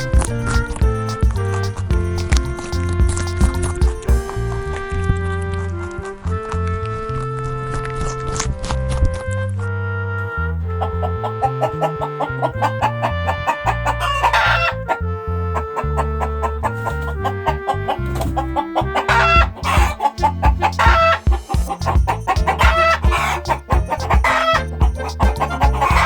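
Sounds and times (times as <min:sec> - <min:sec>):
music with steady beat: 0:00.0 - 0:05.1, 0:19.1 - 0:26.0
chickens clucking: 0:10.8 - 0:15.0, 0:15.6 - 0:26.0
rooster crowing: 0:10.8 - 0:15.0, 0:15.6 - 0:21.4, 0:22.5 - 0:26.0.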